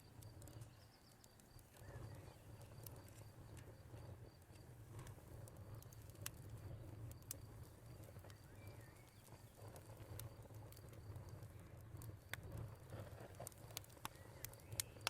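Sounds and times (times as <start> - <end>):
cricket chirping: 0.0 - 13.0
wood fire crackling: 0.0 - 15.0
bird chirp: 8.2 - 9.6.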